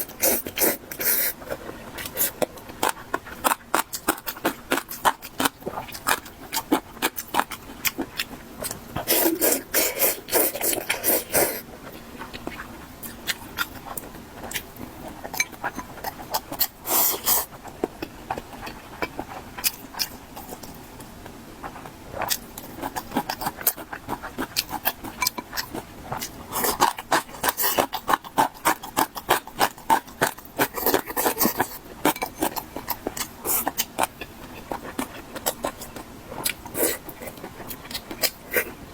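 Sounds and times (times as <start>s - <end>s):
close chewing and crunching: 0.0s - 38.9s.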